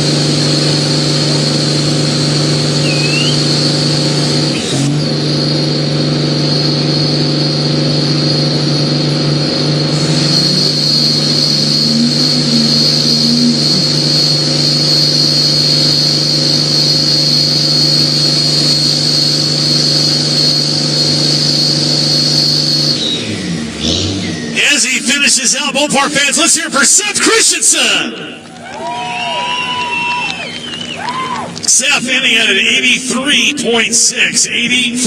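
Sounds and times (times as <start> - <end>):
engine at high revs: 0.0 - 28.2
tyres squealing: 2.8 - 3.6.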